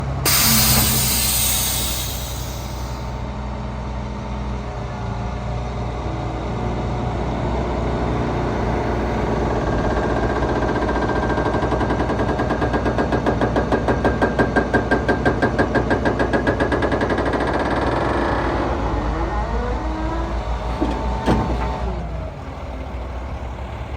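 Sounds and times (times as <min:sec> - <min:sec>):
diesel truck engine running: 0:00.0 - 0:23.9
hiss: 0:00.3 - 0:03.2.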